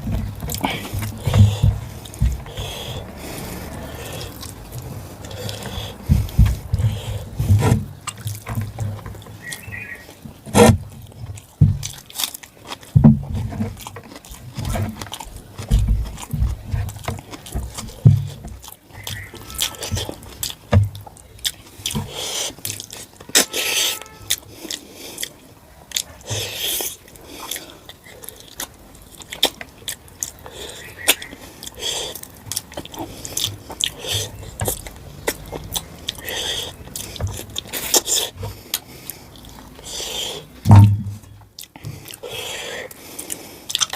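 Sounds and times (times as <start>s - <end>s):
wet chewing and lip smacks: 0.0s - 7.3s, 7.9s - 13.0s, 13.6s - 40.6s, 41.2s - 43.9s
low thuds: 0.0s - 9.3s, 13.0s - 18.6s, 40.6s - 41.4s.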